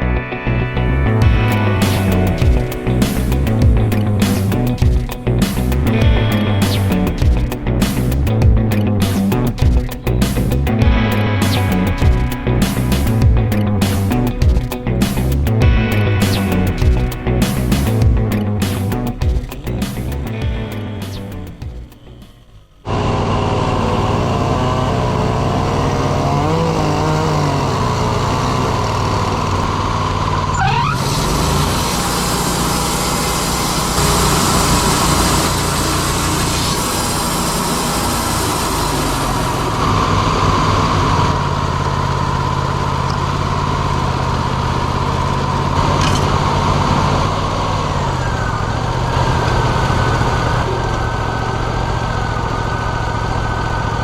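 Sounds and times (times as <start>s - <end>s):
sawmill engine running: 0.0s - 54.0s
harsh hissing noise: 1.5s - 8.4s, 31.0s - 40.1s.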